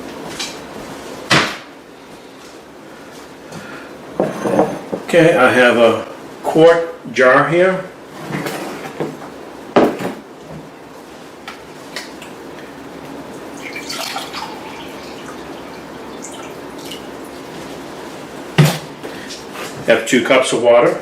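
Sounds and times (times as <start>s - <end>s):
water pouring into glass jar: 13.6s - 17.1s.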